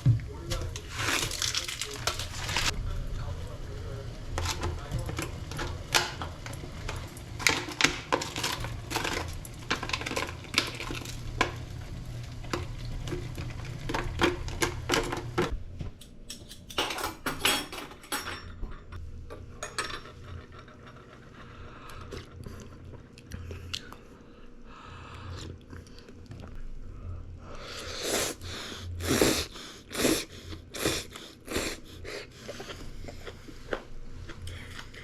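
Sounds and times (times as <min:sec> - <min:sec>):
steady low hum: 0:00.0 - 0:16.8, 0:18.1 - 0:35.0
dishes and utensils clattering: 0:04.4 - 0:11.6, 0:12.4 - 0:15.5, 0:16.3 - 0:21.5.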